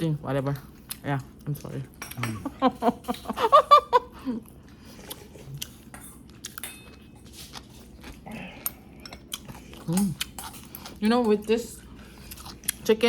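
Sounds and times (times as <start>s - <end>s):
person chewing: 4.3s - 11.0s, 11.7s - 12.9s.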